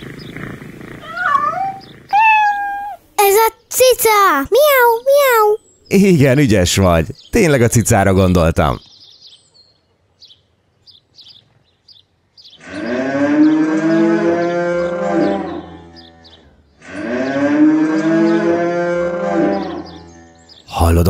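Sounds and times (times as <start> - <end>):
cow mooing: 12.6 - 20.6.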